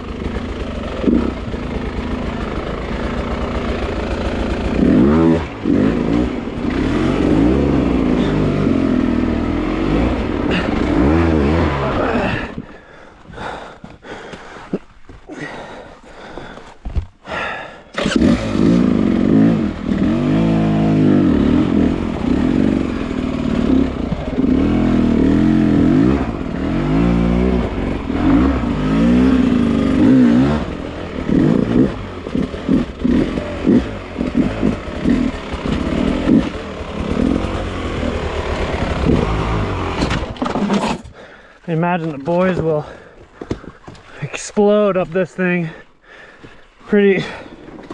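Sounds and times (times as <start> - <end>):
dirt bike engine revving: 0.0 - 12.7, 18.0 - 41.0, 46.8 - 47.9.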